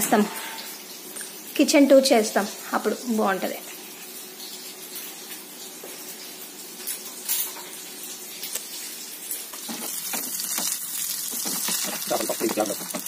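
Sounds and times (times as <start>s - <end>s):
fish sizzling in hot oil: 2.8s - 13.0s.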